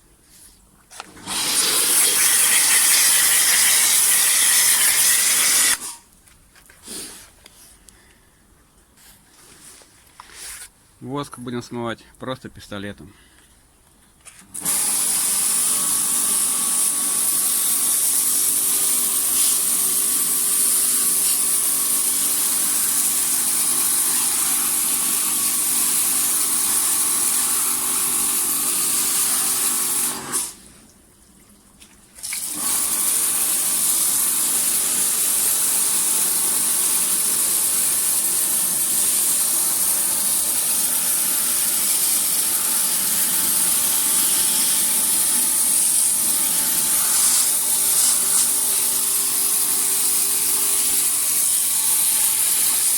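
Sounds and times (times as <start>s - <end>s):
washer pump humming: 1.1s - 5.8s, 38.5s - 52.9s
pressure washer spraying water: 1.2s - 6.0s, 14.6s - 30.5s, 32.3s - 52.9s.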